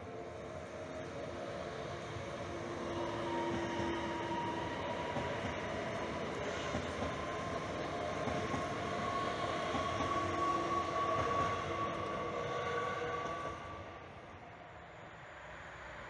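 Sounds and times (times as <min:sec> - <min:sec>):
passenger train passing: 0:00.0 - 0:16.0.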